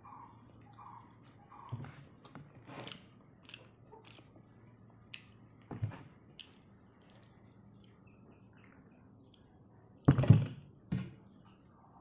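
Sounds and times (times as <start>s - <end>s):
chewing with wet mouth clicks: 6.3s - 9.5s.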